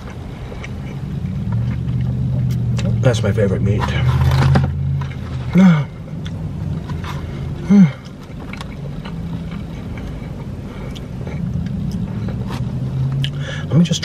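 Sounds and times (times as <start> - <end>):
wet chewing: 0.0 - 3.0, 6.1 - 13.4
car engine idling hum: 0.0 - 14.0.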